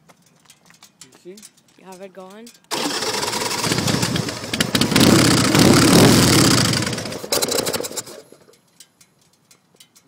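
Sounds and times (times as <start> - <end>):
engine popping: 2.7 - 8.4
motorcycle engine running loudly: 2.8 - 8.2.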